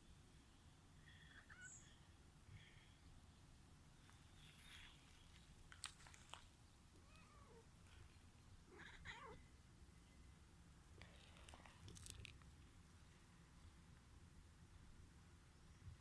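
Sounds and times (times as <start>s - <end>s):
cat meowing softly: 7.0s - 7.7s, 8.7s - 9.5s.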